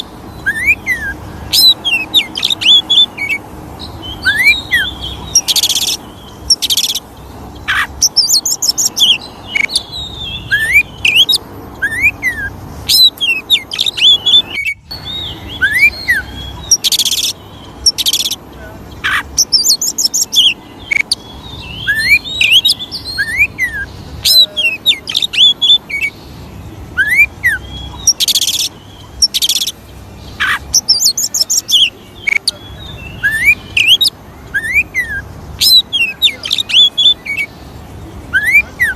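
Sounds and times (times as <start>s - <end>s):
bird song with whistles and rasps: 0.0s - 38.9s.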